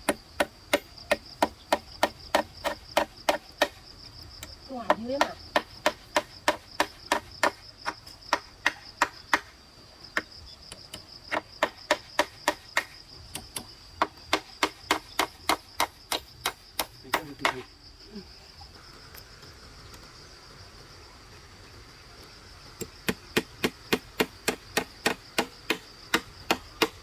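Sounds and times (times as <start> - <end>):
high insect drone: 0.0 - 27.0.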